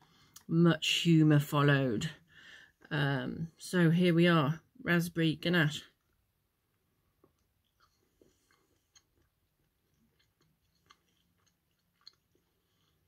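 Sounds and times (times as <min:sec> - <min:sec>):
mouth clicks of chewing: 0:07.2 - 0:13.0.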